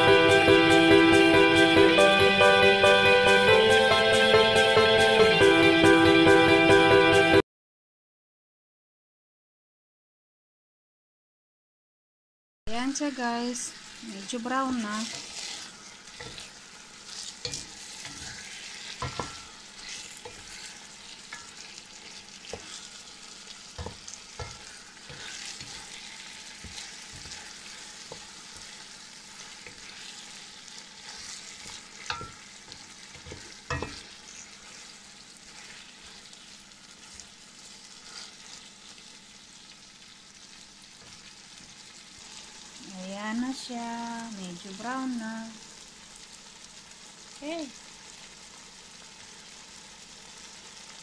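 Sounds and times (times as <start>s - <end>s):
chicken sizzling in oil: 12.7s - 51.0s
wooden spoon stirring: 14.3s - 39.1s
spoon knocking against pan: 19.0s - 19.5s, 23.8s - 24.6s, 32.0s - 32.5s, 33.2s - 34.1s.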